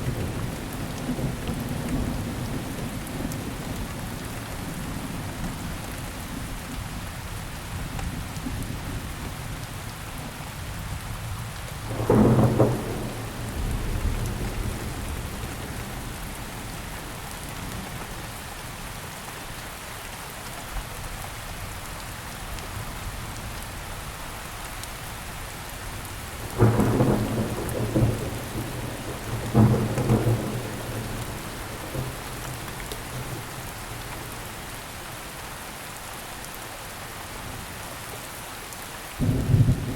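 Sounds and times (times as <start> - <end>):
steady rainfall: 0.0 - 39.9
thunder rumbling: 11.9 - 16.8, 26.4 - 34.6.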